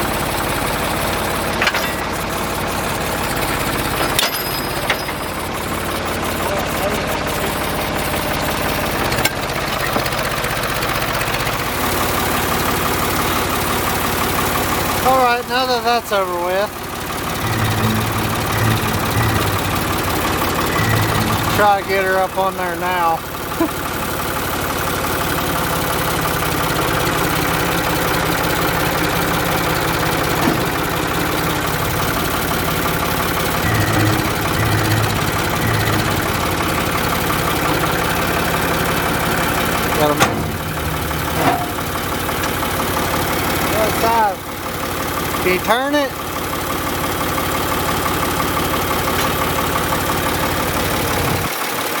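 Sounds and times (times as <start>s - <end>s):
tractor engine running: 0.0s - 52.0s.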